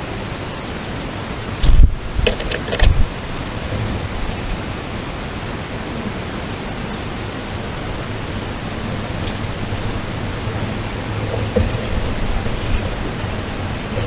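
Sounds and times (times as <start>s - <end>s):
outdoor background hiss: 0.0s - 14.0s
small birds chirping: 1.6s - 4.6s, 6.9s - 14.0s
low hum: 7.6s - 14.0s.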